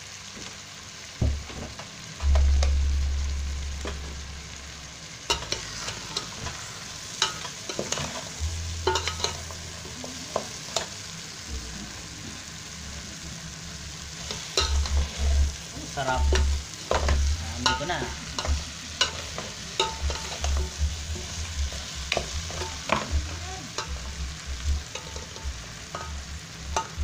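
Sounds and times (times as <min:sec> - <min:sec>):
food sizzling in a pot: 0:00.0 - 0:27.0
low rumble: 0:02.2 - 0:06.9, 0:08.4 - 0:10.2, 0:11.5 - 0:18.9
spoon clinking against pot: 0:08.8 - 0:09.5.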